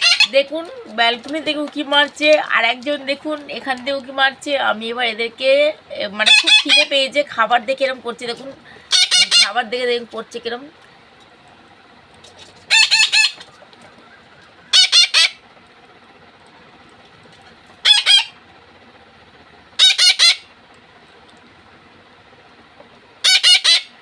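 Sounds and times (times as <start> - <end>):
parakeets calling shrilly: 0.0 - 1.1, 6.1 - 7.3, 8.6 - 9.8, 12.5 - 15.6, 17.7 - 18.5, 19.7 - 20.6, 23.2 - 24.0.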